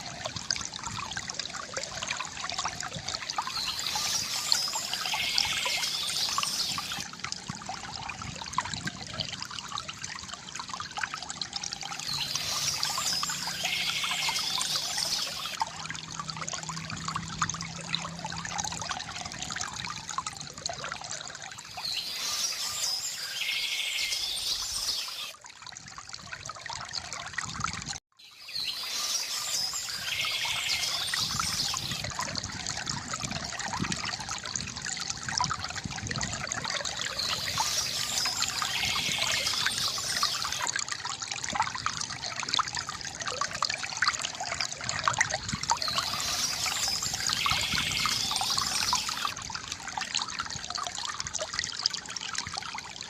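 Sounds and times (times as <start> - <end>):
water trickling from bamboo fountain: 0.0 - 53.0
bird singing: 3.5 - 7.0, 12.0 - 15.6, 21.7 - 25.3, 28.2 - 32.0, 37.1 - 40.6, 45.8 - 49.3.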